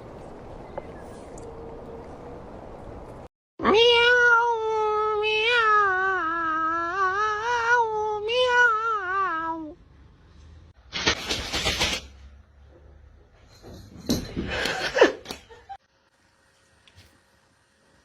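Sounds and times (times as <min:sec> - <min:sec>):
cat yowling: 0:03.6 - 0:09.8.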